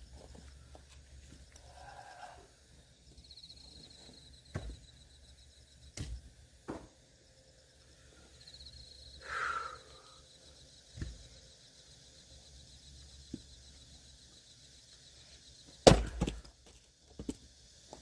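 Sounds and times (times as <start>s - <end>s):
axe splitting firewood: 15.8s - 17.4s.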